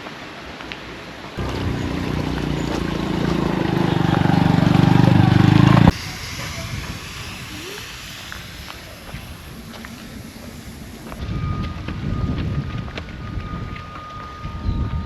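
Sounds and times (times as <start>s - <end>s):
motor engine running: 1.4s - 11.2s
wind noise: 1.4s - 15.0s.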